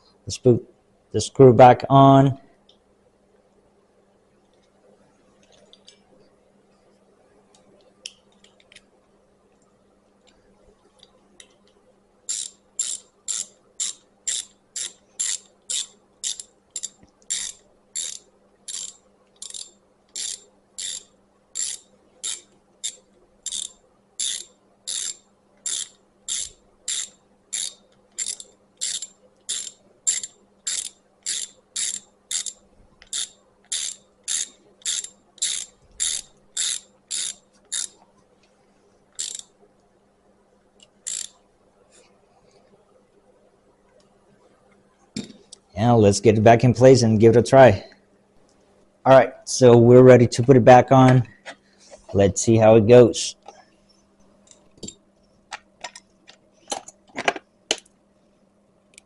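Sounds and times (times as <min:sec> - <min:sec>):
hand ratchet clicking: 0:12.3 - 0:38.0, 0:39.2 - 0:39.5, 0:40.8 - 0:41.4.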